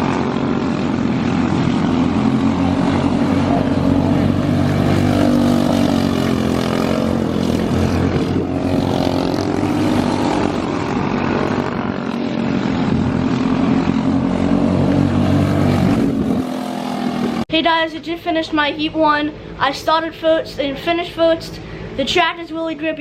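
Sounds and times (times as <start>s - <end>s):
kart engines running hard: 0.0s - 17.4s.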